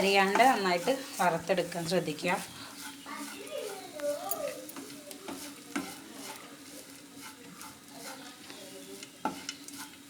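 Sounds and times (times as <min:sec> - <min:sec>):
spatula knocking against pan: 0:00.0 - 0:01.0
spatula scraping coconut in pan: 0:00.0 - 0:10.0.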